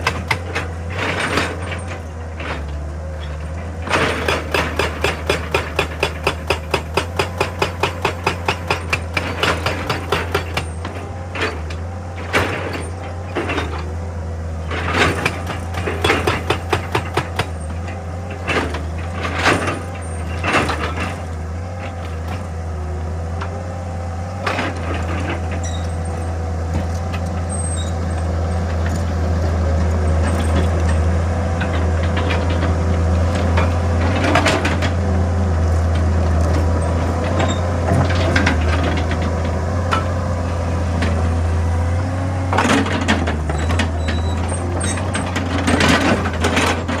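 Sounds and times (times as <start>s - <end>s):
machine knocking and clanking on rock: 0.0s - 14.0s, 14.7s - 22.5s, 24.3s - 47.0s
excavator engine running: 0.0s - 47.0s.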